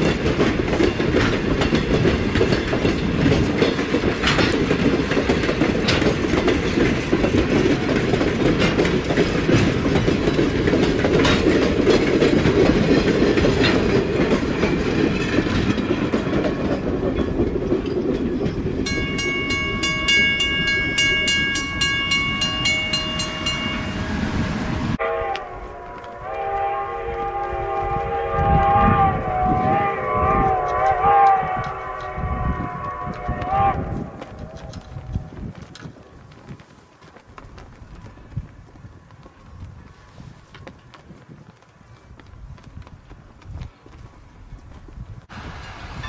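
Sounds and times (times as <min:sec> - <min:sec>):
train cars rumbling past: 0:00.0 - 0:37.0, 0:44.1 - 0:46.0
wheels clicking over rail joints: 0:00.0 - 0:46.0
crossing bell ringing: 0:13.4 - 0:33.4, 0:45.3 - 0:46.0.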